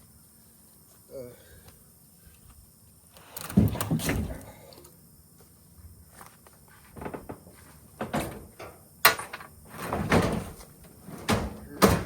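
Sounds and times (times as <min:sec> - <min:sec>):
sheet metal knocks and clunks: 0:08.0 - 0:12.0.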